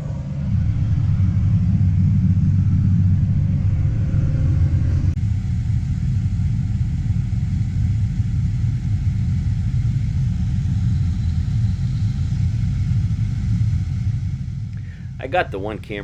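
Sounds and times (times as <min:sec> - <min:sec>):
tractor engine rumbling: 0:14.7 - 0:16.0.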